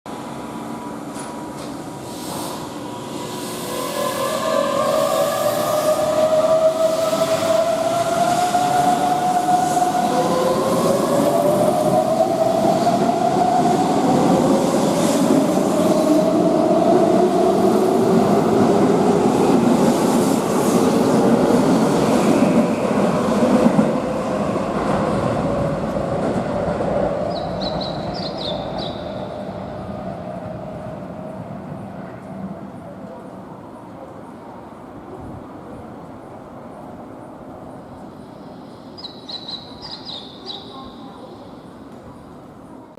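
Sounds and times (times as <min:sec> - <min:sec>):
electric train rolling: 0:00.2 - 0:33.4.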